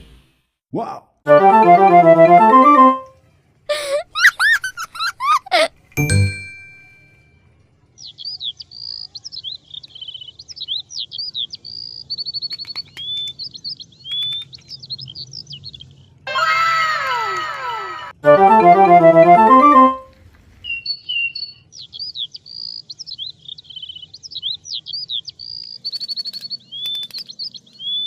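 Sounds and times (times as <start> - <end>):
falling tones: 1.3 - 3.2, 18.2 - 20.1
ringing ding: 6.0 - 7.3
birds chirping and tweeting: 7.4 - 16.3, 20.4 - 28.0.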